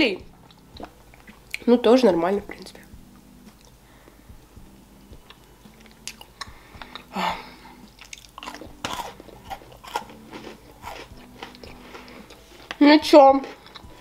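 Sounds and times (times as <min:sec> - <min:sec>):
chewing with wet mouth clicks: 0:05.2 - 0:07.1, 0:07.8 - 0:12.8.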